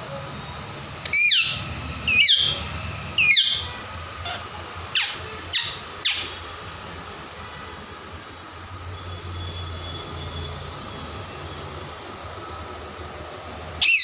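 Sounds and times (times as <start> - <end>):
parrot squawking: 1.1 - 6.5, 13.8 - 14.0.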